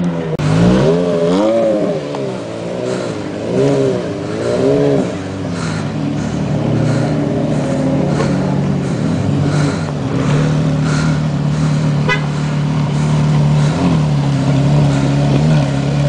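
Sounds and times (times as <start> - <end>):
car engine droning: 0.0 - 16.0.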